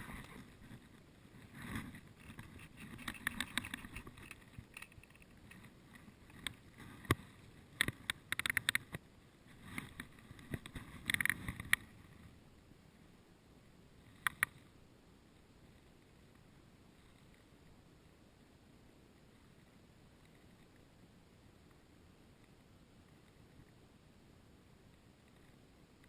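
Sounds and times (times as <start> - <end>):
sharp clicks: 7.8 - 9.0, 14.2 - 14.6.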